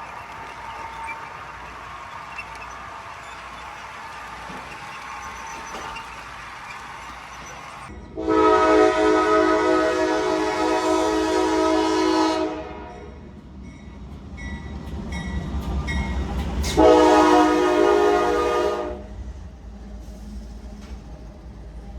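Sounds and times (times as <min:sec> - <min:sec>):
locomotive air horn: 0:08.2 - 0:13.2, 0:16.7 - 0:19.1.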